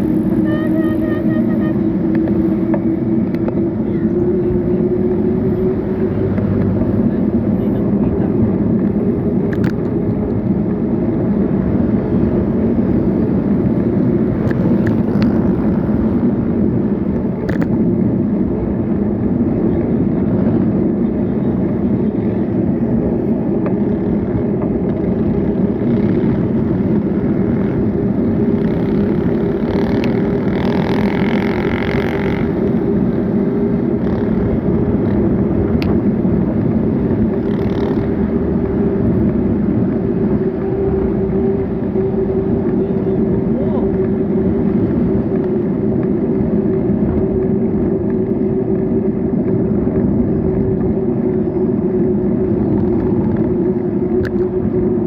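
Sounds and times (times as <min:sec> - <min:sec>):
road noise: 0:00.0 - 0:55.0
motor vehicle passing: 0:25.2 - 0:45.8.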